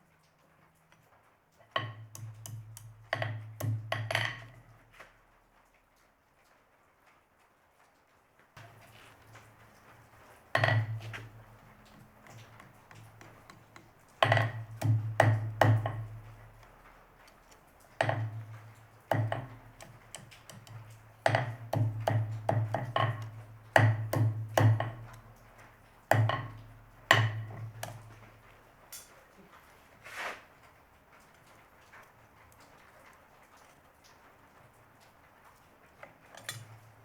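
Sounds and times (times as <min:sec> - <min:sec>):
hammer striking metal on anvil: 0:26.1 - 0:28.1.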